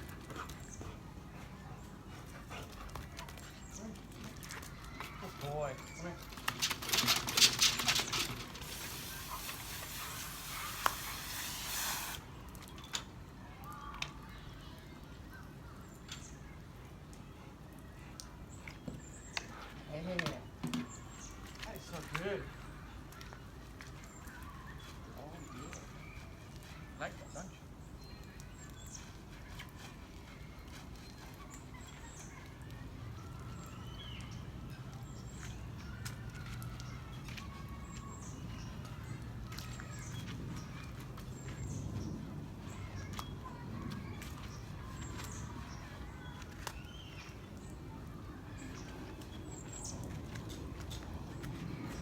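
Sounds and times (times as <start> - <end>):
birds chirping: 0.5 - 12.2
water spraying: 8.4 - 12.2.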